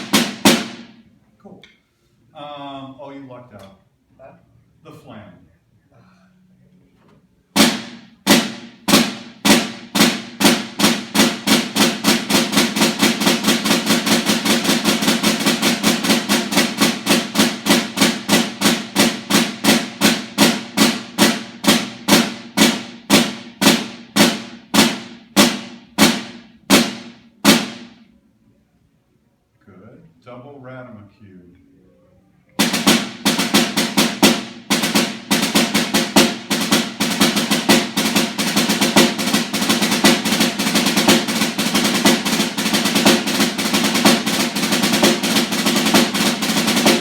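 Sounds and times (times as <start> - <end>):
snare drum strokes: 0.0 - 1.0, 7.6 - 28.1, 32.6 - 47.0.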